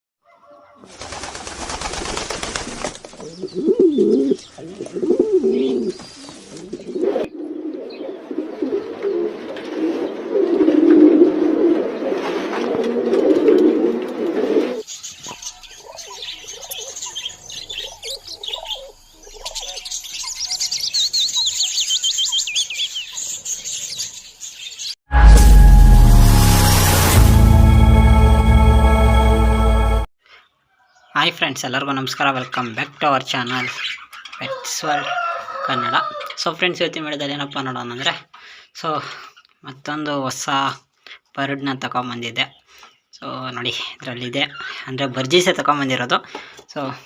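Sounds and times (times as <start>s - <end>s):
birds cooing: 2.6s - 20.4s
small birds twittering: 14.8s - 25.0s, 30.4s - 34.6s, 42.0s - 44.9s.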